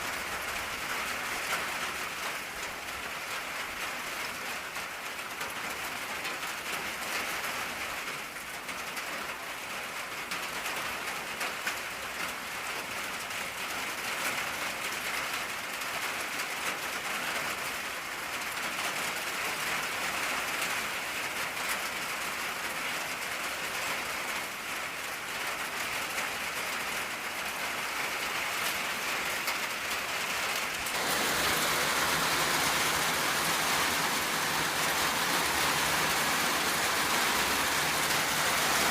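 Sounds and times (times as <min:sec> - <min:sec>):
rain drumming on a tin roof: 0:00.0 - 0:38.9.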